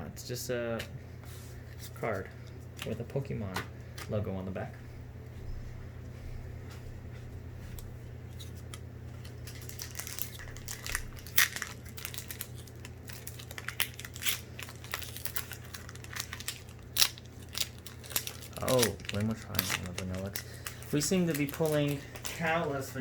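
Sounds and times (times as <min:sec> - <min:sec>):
steady low hum: 0:00.0 - 0:23.0
foil wrapper crinkling: 0:08.3 - 0:22.6
sharp foil snaps: 0:09.4 - 0:22.4.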